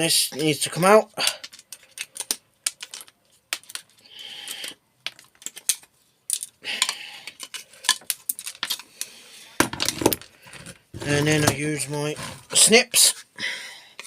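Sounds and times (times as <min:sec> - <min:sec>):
microwave parts rattling and scraping: 0:09.6 - 0:12.6.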